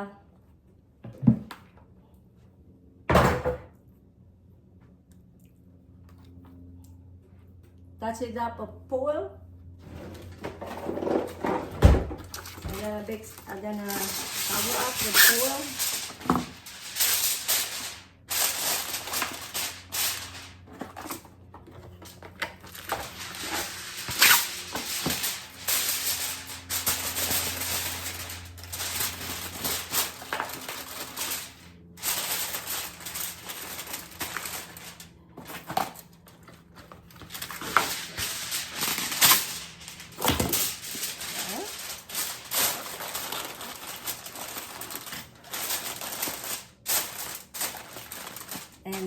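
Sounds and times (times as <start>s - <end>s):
aluminium foil crinkling: 10.6s - 49.0s.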